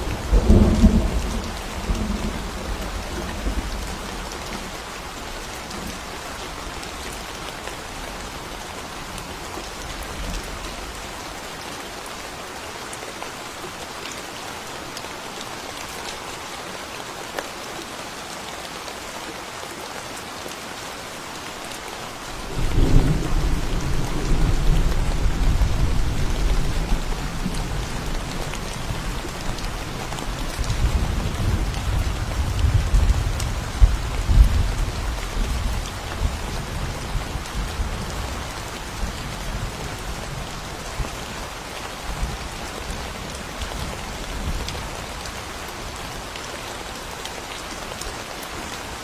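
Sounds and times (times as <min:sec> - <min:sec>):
thunder rumbling: 0:00.0 - 0:04.2, 0:22.5 - 0:38.0
rain falling in a forest: 0:00.0 - 0:49.0.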